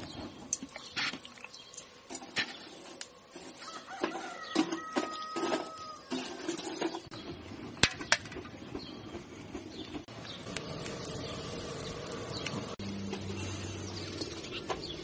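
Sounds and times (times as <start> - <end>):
outdoor background hiss: 0.0 - 8.3.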